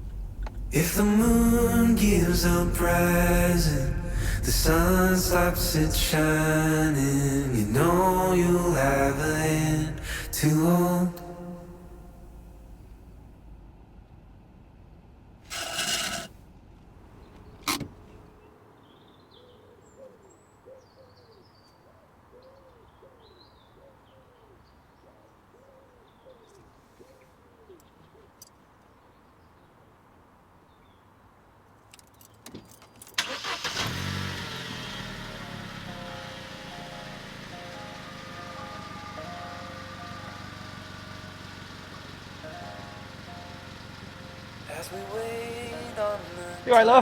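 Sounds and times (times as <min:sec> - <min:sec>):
loud rustling burst: 0:00.0 - 0:10.5
car engine starting and running: 0:00.0 - 0:18.5, 0:33.2 - 0:47.0.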